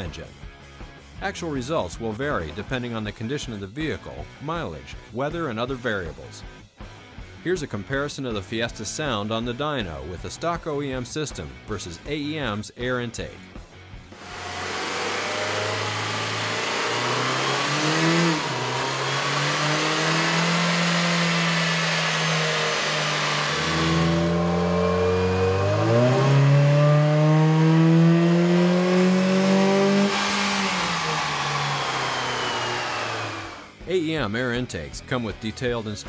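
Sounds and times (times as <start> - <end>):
car engine revving on dyno: 14.1 - 33.7.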